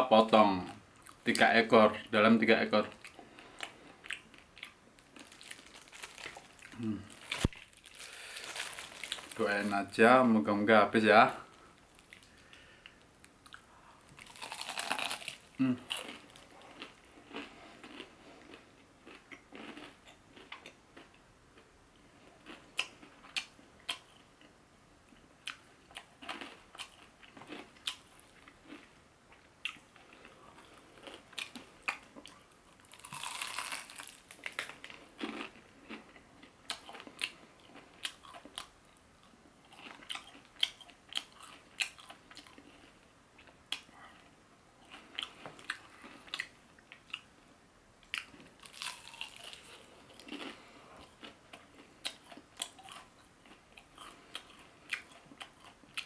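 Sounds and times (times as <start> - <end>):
chewing and crunching: 2.8 - 9.6, 11.9 - 21.2, 25.1 - 47.3, 48.0 - 56.0.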